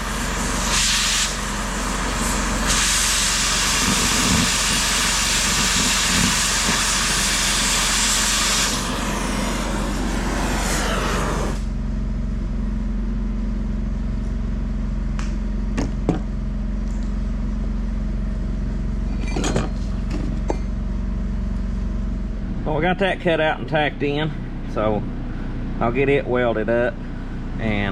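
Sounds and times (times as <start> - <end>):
cutting torch hissing: 0.0 - 11.8
engine hum: 0.0 - 27.9.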